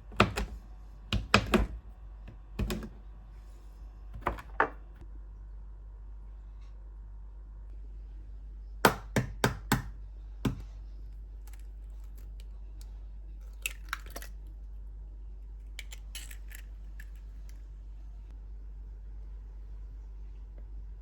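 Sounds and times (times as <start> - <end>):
hard objects knocking and clicking: 0.0 - 3.0, 4.2 - 4.9
steady low hum: 0.0 - 21.0.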